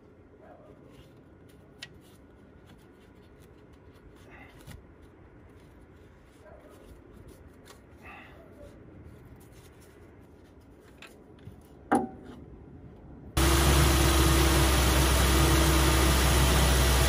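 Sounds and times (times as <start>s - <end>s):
engine idling: 13.4s - 17.0s.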